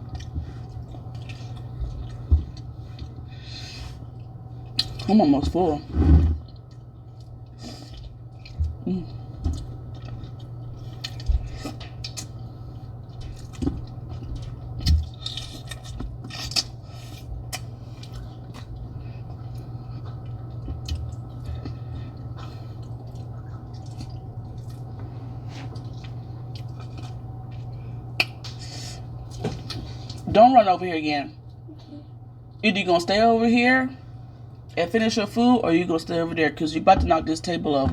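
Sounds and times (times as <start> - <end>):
chewing and wet mouth noises: 0.0 - 3.3, 3.9 - 5.1, 6.4 - 30.2
steady low hum: 0.0 - 37.9.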